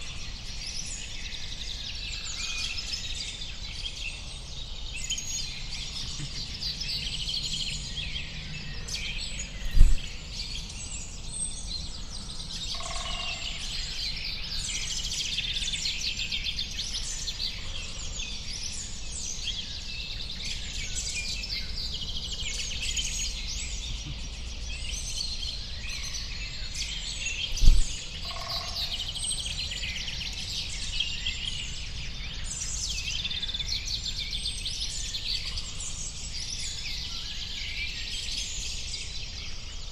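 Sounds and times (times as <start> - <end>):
small birds chirping: 0.0 - 13.1
dull thump: 9.7 - 10.1, 27.6 - 27.9.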